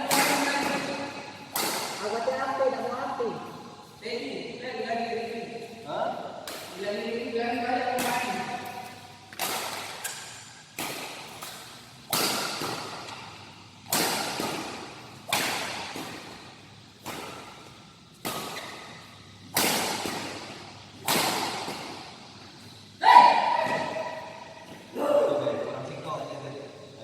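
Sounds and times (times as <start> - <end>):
rackets striking shuttlecock: 0.0 - 2.4, 6.3 - 6.9, 7.9 - 22.5.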